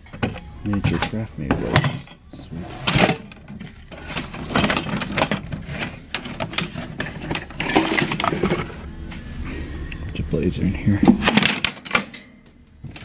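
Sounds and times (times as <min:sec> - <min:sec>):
fan parts clattering: 0:00.0 - 0:09.2, 0:10.9 - 0:13.0.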